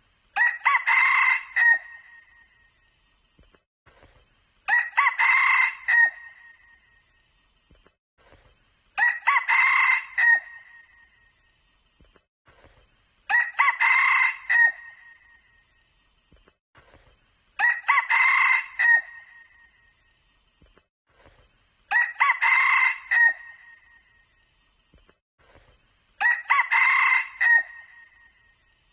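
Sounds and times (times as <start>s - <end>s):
rooster crowing: 0.4s - 2.0s, 4.7s - 6.4s, 9.0s - 10.8s, 13.3s - 15.2s, 17.6s - 19.4s, 21.9s - 23.8s, 26.2s - 28.1s.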